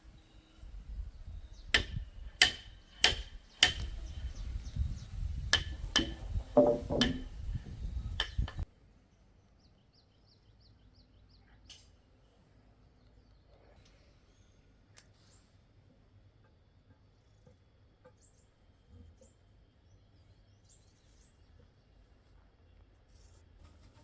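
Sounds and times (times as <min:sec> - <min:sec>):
hand tool striking blows: 0:01.7 - 0:08.6.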